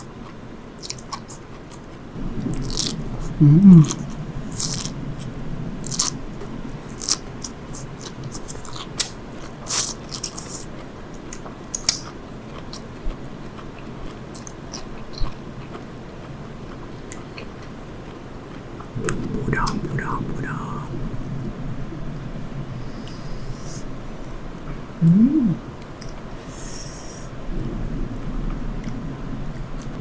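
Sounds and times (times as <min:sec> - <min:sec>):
chewing: 0:00.0 - 0:06.2, 0:06.8 - 0:19.7
crisp bites and popping: 0:02.5 - 0:03.1, 0:03.8 - 0:05.0, 0:05.9 - 0:06.2.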